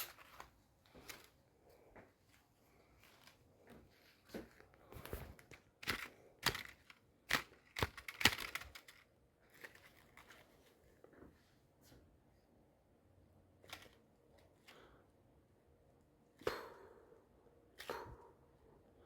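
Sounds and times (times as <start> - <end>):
aluminium foil crinkling: 5.0 - 10.6.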